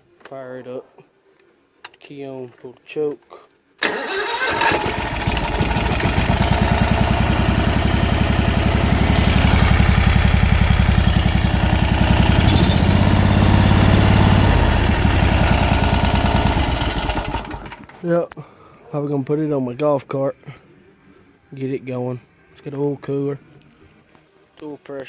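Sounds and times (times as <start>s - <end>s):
small engine running: 3.8s - 18.0s.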